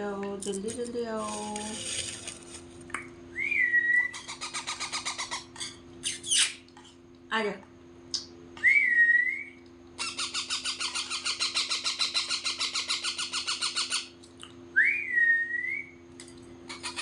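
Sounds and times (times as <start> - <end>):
parrot gliding whistle: 3.3 - 5.3, 8.6 - 10.8, 14.8 - 16.0
parrot harsh squawks: 10.0 - 14.1, 16.7 - 17.0.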